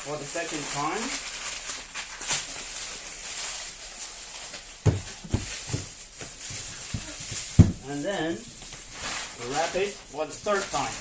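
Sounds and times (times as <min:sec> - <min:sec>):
wrapping paper rustling: 0:00.0 - 0:11.0
dull knocks: 0:04.8 - 0:06.0, 0:06.9 - 0:07.8.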